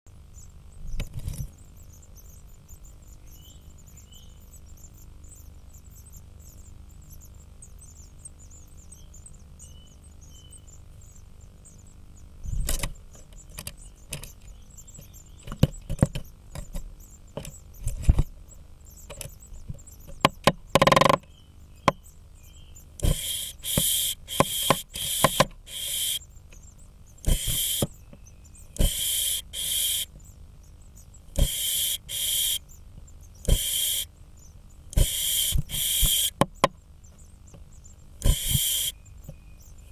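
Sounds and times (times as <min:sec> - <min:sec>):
electrical hum: 0:00.1 - 0:39.9
woodpecker knocking on nest box: 0:15.0 - 0:18.4, 0:19.0 - 0:22.0, 0:23.0 - 0:26.2, 0:27.2 - 0:28.0, 0:28.8 - 0:30.0, 0:31.4 - 0:32.6, 0:33.4 - 0:34.0, 0:34.9 - 0:36.8, 0:37.6 - 0:38.9
hissing bursts: 0:23.0 - 0:26.2, 0:27.2 - 0:27.9, 0:28.8 - 0:30.1, 0:31.4 - 0:32.6, 0:33.5 - 0:34.1, 0:35.0 - 0:36.4, 0:38.2 - 0:38.9.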